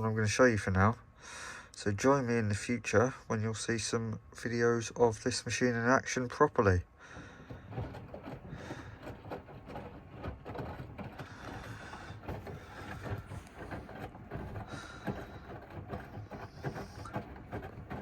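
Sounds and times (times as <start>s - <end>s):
mechanical clicking and rattling: 7.4s - 18.0s.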